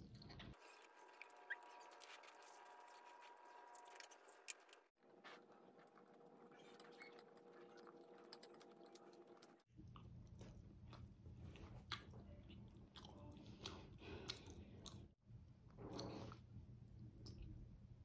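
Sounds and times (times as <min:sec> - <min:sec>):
wet chewing mouth clicks: 0:07.7 - 0:15.1.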